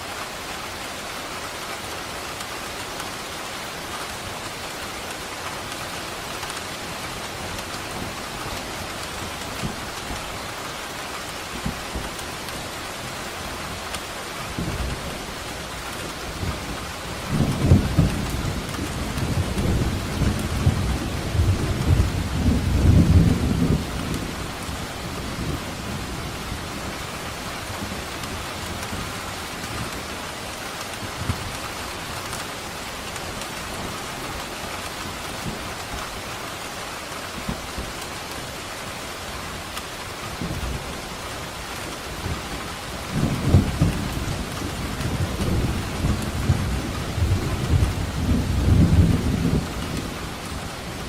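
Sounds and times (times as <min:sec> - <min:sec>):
steady rain: 0:00.0 - 0:51.0
thunder rumbling: 0:41.8 - 0:51.0.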